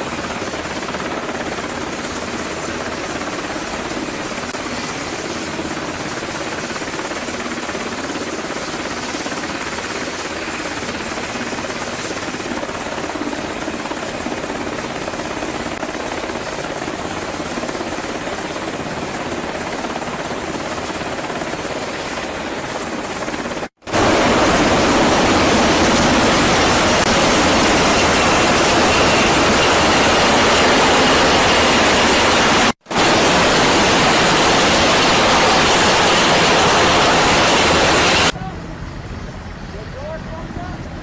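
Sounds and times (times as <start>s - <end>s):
loud rushing noise: 23.8s - 38.4s.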